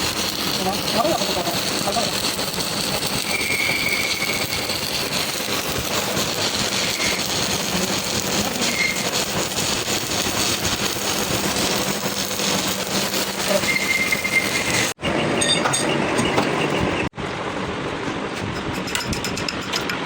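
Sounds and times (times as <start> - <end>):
shop machinery rushing noise: 0.0 - 20.0.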